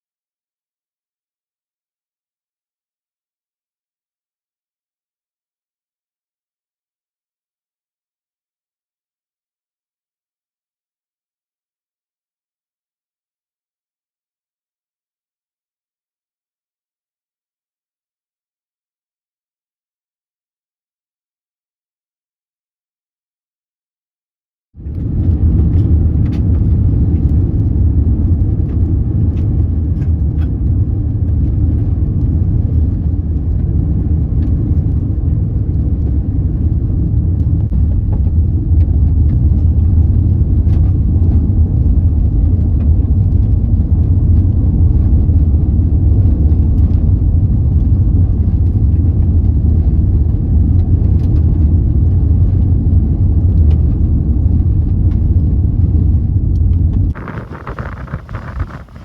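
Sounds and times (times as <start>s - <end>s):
car interior road and engine rumble: 24.9s - 59.0s.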